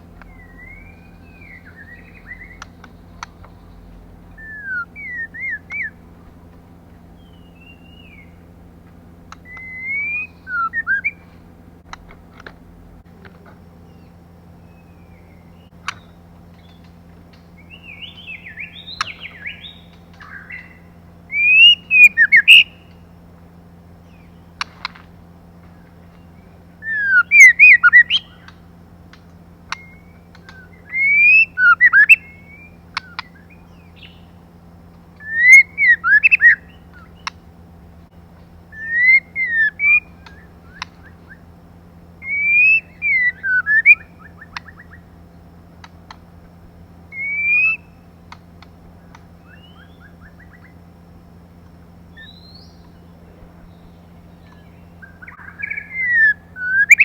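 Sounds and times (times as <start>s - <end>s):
steady low hum: 0.0s - 57.0s
bird singing whistled phrases: 0.2s - 6.0s, 7.2s - 8.4s, 9.4s - 11.3s, 17.5s - 22.9s, 26.2s - 28.6s, 29.7s - 34.4s, 35.2s - 37.4s, 38.7s - 41.5s, 42.2s - 45.1s, 47.0s - 48.1s, 49.4s - 50.8s, 52.1s - 57.0s.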